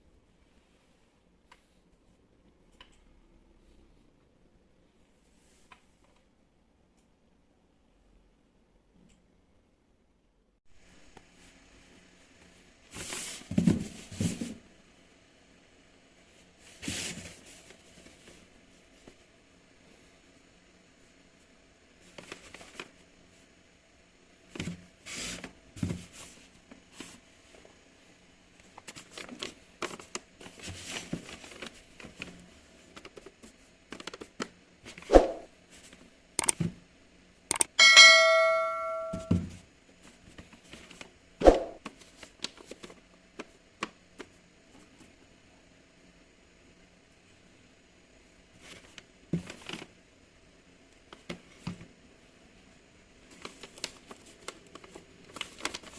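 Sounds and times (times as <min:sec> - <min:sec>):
ringing bell-like ding: 0:37.8 - 0:39.4
packaging and plastic rustling: 0:53.3 - 0:55.9.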